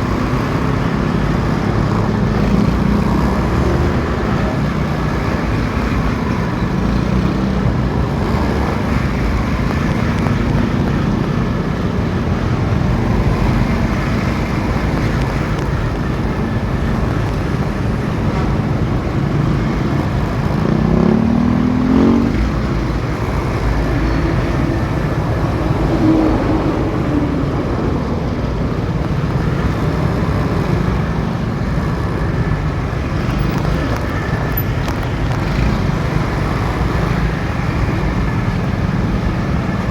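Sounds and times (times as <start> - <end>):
motorcycle engine running: 0.0 - 26.5.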